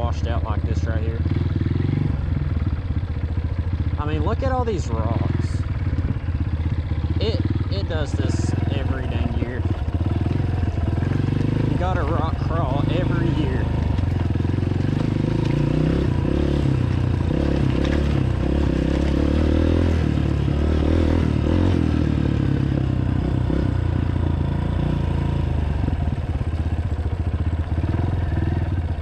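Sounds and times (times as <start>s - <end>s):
dirt bike engine at low revs: 0.0s - 29.0s
clatter under wheels: 5.3s - 20.7s.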